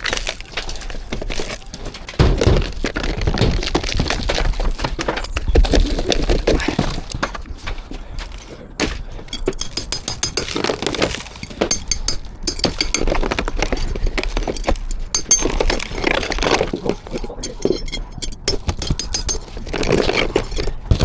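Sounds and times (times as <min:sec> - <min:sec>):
roof sheets cracking and clattering: 0:00.0 - 0:08.3.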